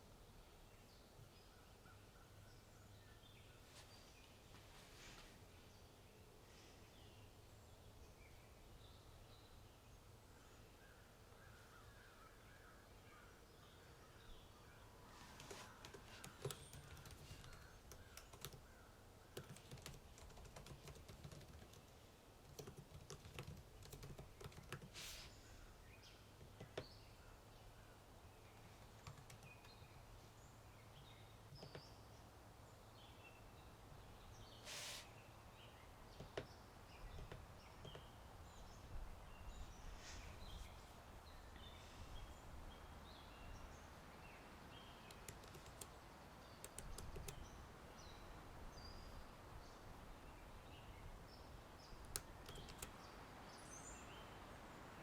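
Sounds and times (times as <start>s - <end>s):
keyboard typing: 15.4s - 18.6s, 19.4s - 24.9s, 28.8s - 29.7s, 45.1s - 45.9s, 46.6s - 47.4s, 52.0s - 53.0s.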